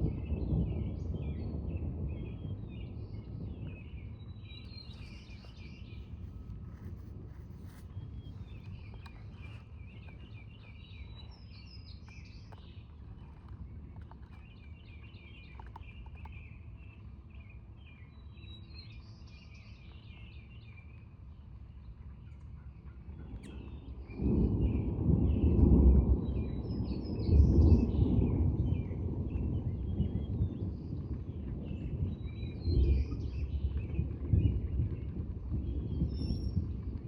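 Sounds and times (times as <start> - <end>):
thunder clap and rumbling: 0.0 - 14.1, 23.1 - 37.0
small birds chirping: 7.6 - 22.5.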